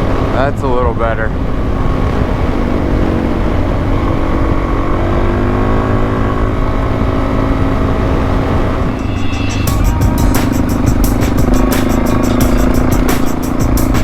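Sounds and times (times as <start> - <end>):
motorcycle engine running: 0.0 - 14.0
wind rumble on microphone: 0.0 - 14.0
music: 8.8 - 14.0.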